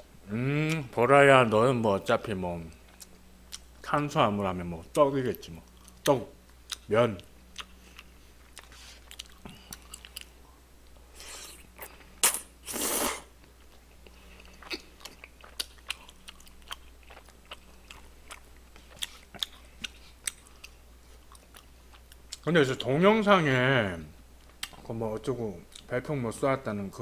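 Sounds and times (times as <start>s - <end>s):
chewing with wet mouth clicks: 2.7s - 3.7s, 5.6s - 6.9s, 7.5s - 10.4s, 13.4s - 22.5s, 24.4s - 24.9s, 25.7s - 25.9s.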